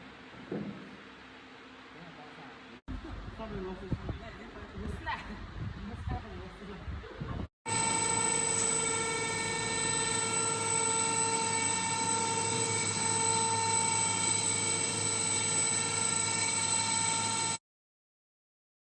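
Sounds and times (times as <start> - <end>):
mechanical hum: 6.9 - 17.6
machine whine: 7.7 - 17.6.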